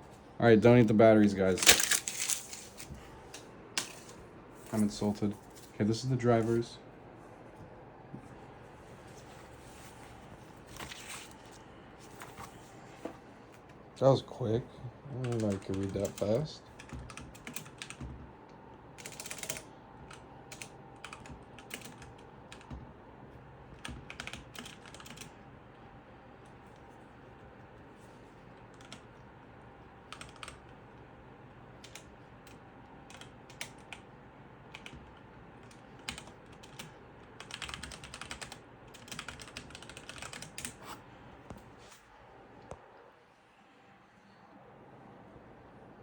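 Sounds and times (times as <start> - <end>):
typing on computer keyboard: 15.2 - 18.2, 19.0 - 22.7, 23.8 - 25.3, 28.7 - 29.1, 30.1 - 30.8, 31.8 - 34.0, 34.7 - 40.8.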